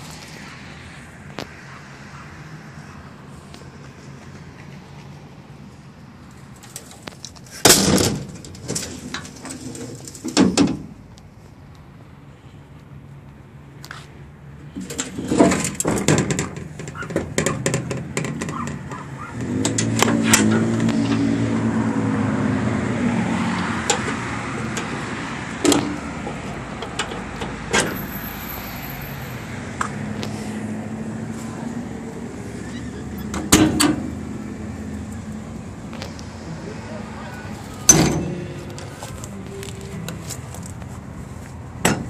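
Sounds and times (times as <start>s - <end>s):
diesel engine revving: 18.6s - 41.3s.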